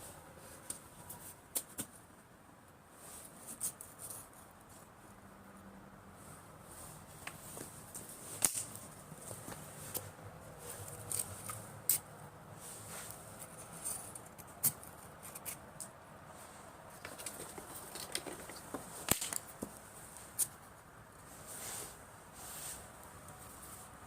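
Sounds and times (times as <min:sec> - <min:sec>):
faint steady hiss: 0:00.0 - 0:24.0
firewood clicks and snaps: 0:07.2 - 0:08.9, 0:17.0 - 0:19.8.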